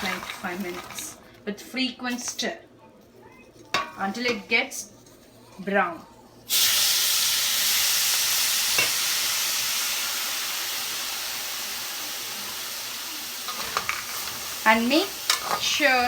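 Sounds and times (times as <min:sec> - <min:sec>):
water sizzling in a hot pan: 0:00.0 - 0:01.3, 0:06.5 - 0:16.0.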